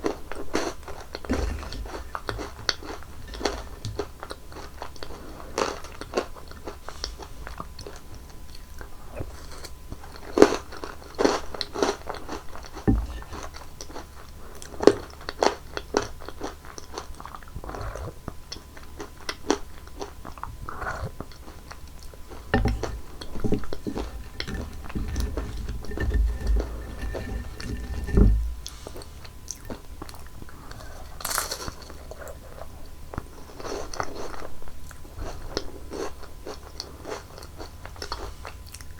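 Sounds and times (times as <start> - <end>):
low thuds: 1.3 - 2.5, 22.5 - 28.7
crunching chocolate candy: 29.5 - 38.9.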